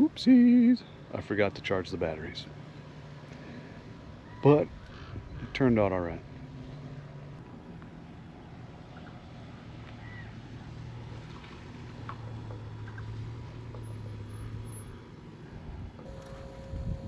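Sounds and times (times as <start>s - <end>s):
boat motor humming: 16.0s - 17.0s.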